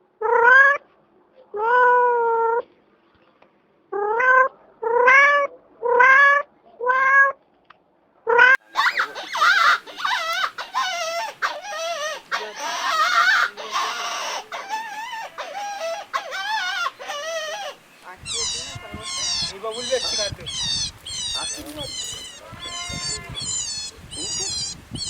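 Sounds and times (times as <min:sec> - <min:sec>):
animal warbling calls: 0:03.9 - 0:07.4, 0:08.3 - 0:25.0
cat meowing: 0:04.0 - 0:07.4, 0:08.4 - 0:25.0.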